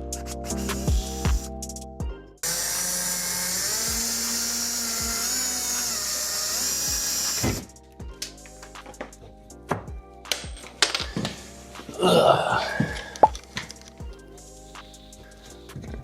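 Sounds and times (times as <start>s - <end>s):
background music with a beat: 0.0s - 2.4s, 6.8s - 12.0s, 12.6s - 16.0s
power drill running: 2.4s - 7.6s.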